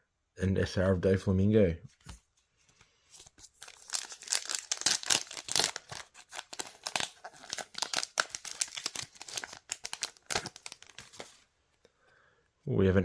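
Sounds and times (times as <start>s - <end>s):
foil wrapper crinkling and tearing: 3.4s - 11.4s.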